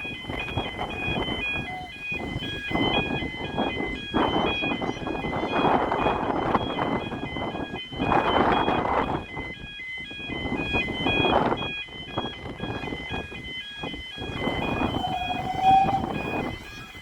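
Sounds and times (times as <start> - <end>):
level crossing alarm warbling: 0.0 - 17.0.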